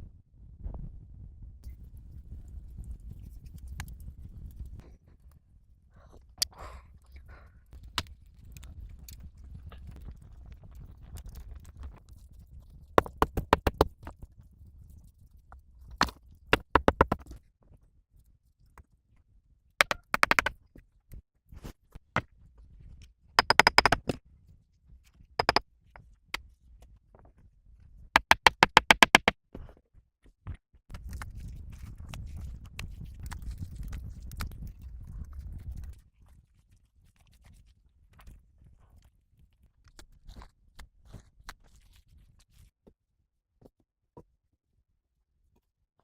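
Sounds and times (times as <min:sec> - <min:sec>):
rapid sharp knocking: 0:16.6 - 0:17.2, 0:19.8 - 0:20.5, 0:23.4 - 0:24.1, 0:25.4 - 0:25.6, 0:28.2 - 0:29.3.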